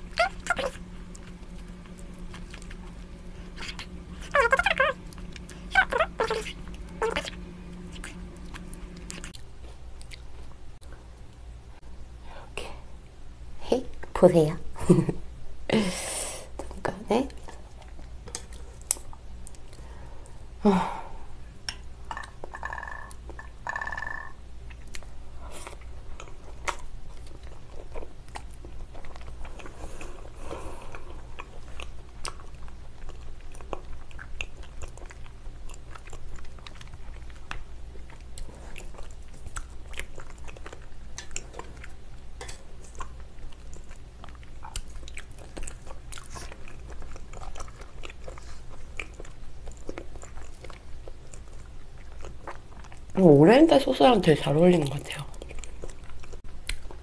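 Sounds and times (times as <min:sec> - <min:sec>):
wet chewing mouth clicks: 0:00.0 - 0:09.4, 0:30.9 - 0:53.2, 0:55.2 - 0:57.0
food crunching: 0:00.0 - 0:10.7, 0:21.6 - 0:53.3, 0:53.9 - 0:57.0
steady low hum: 0:00.0 - 0:57.0.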